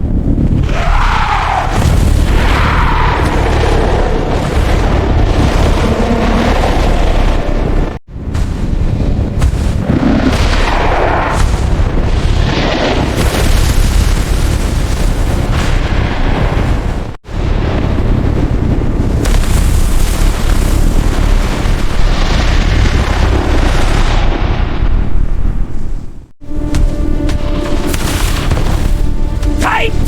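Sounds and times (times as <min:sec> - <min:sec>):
loud low rumbling: 0:00.0 - 0:12.7.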